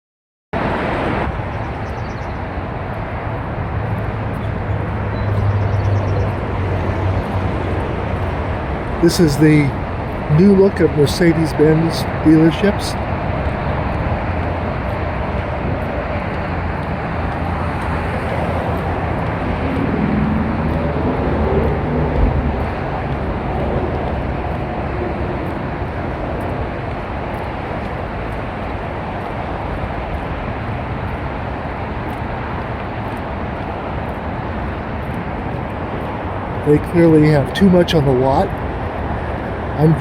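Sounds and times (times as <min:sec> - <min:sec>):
vehicle and road noise: 0:00.6 - 0:40.0
engine note rising and falling: 0:03.8 - 0:27.4.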